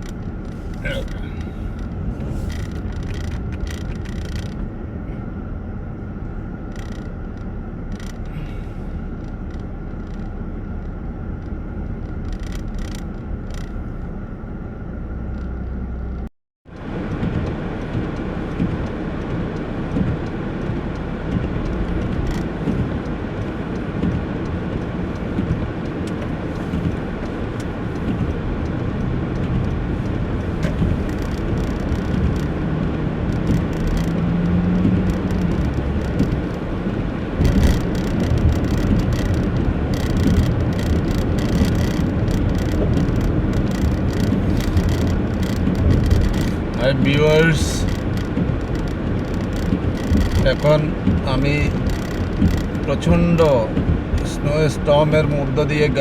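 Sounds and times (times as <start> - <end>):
car engine and road noise: 0.0 - 56.0
faint clicks: 15.3 - 47.2, 47.8 - 54.3.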